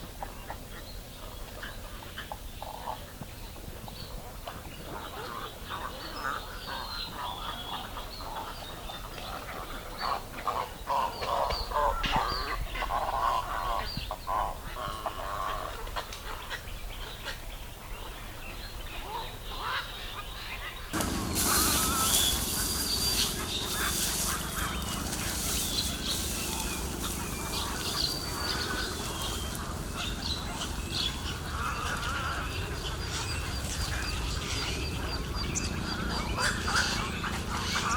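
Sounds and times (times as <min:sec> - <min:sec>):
birds calling harshly: 0:03.8 - 0:37.9
high bird chirps: 0:21.0 - 0:31.4.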